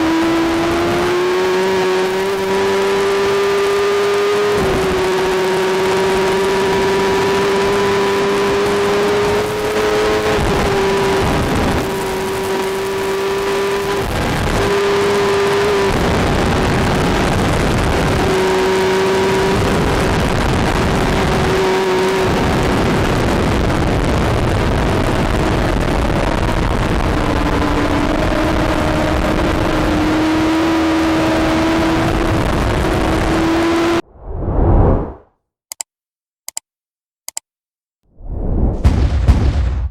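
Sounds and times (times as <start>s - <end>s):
heavy rushing noise: 34.0s - 35.3s, 38.2s - 39.9s.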